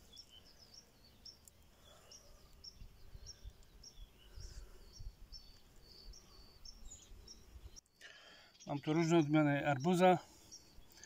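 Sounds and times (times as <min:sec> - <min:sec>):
songbird chirping: 0:00.0 - 0:11.0.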